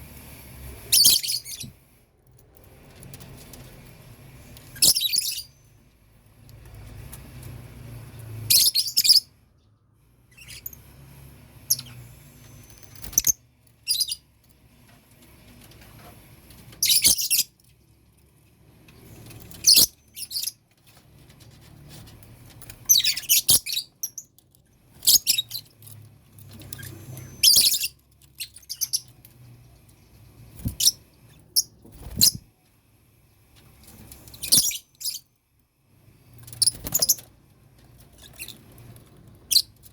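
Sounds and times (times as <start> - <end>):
lovebirds chirping: 10.3 - 10.8, 11.7 - 14.3, 22.8 - 24.4, 26.5 - 29.2.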